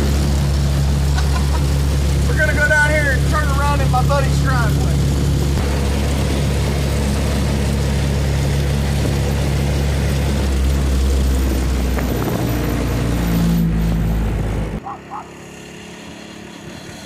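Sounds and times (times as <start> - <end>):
road and wind noise: 0.0 - 17.0
single-cylinder engine running: 0.0 - 17.0.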